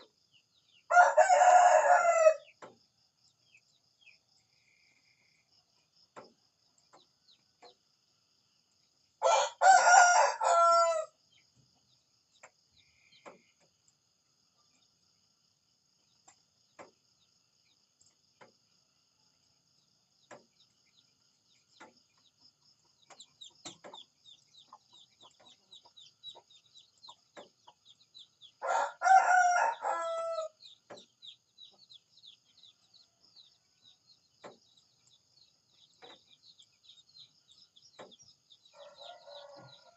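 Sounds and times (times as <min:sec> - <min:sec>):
small birds chirping: 0:00.0 - 0:39.9
rooster crowing: 0:00.9 - 0:02.5, 0:09.2 - 0:11.2, 0:28.6 - 0:30.6, 0:38.7 - 0:39.9.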